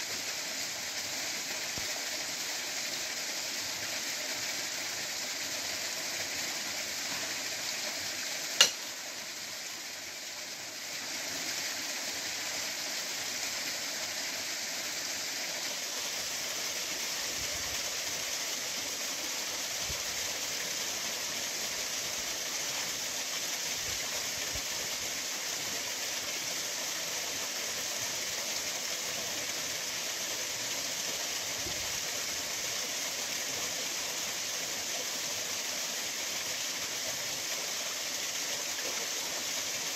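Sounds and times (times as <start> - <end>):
waterfall pouring over rocks: 0.0 - 39.9
sharp click: 8.6 - 8.8.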